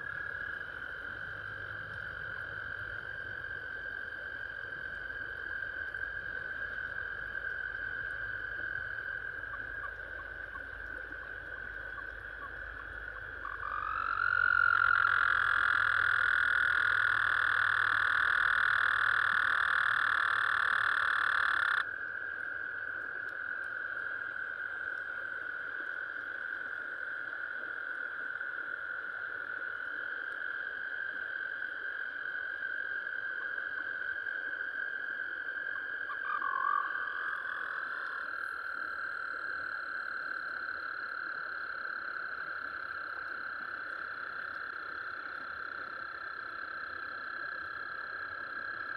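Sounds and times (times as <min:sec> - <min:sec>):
loud frog call: 0:00.0 - 0:21.9, 0:35.7 - 0:41.1
frog chorus: 0:00.0 - 0:48.9.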